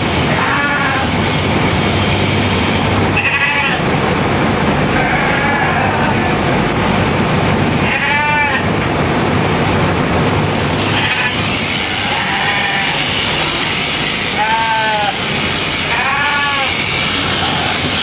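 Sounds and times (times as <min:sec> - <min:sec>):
sheep bleating: 0:00.3 - 0:01.1, 0:03.2 - 0:03.8, 0:04.9 - 0:06.4, 0:07.8 - 0:08.6, 0:10.8 - 0:18.0
electric clippers running: 0:10.8 - 0:18.0.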